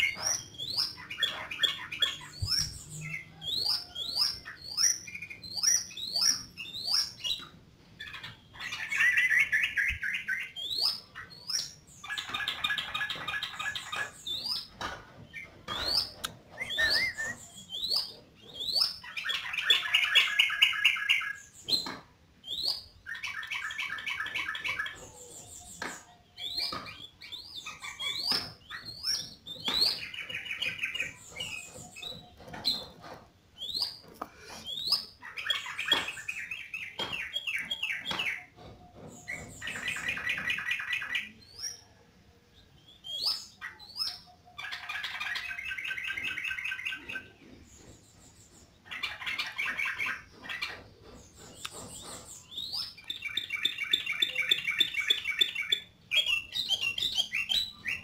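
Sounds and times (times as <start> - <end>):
bird chattering notes: 15.4 - 21.6
bird singing rising chirps: 15.8 - 21.5.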